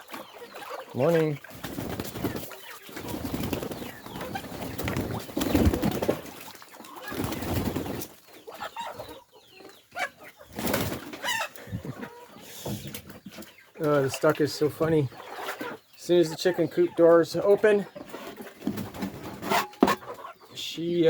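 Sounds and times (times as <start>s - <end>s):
chickens clucking: 0.0s - 21.0s
rustling and wing flapping: 1.4s - 8.2s, 10.5s - 11.9s
short chicken calls: 11.1s - 13.3s.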